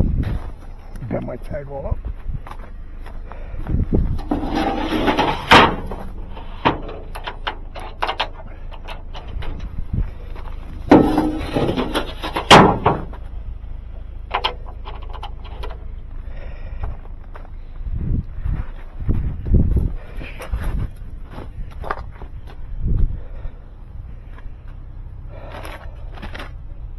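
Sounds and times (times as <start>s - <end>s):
low rumble: 1.9s - 26.9s
loud knocks and bangs: 10.8s - 13.2s.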